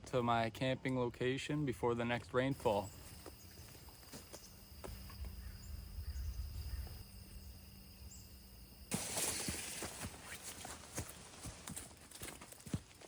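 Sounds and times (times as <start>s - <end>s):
footsteps on a trail: 2.5s - 7.6s, 8.9s - 13.0s
insects chirping: 2.5s - 11.4s.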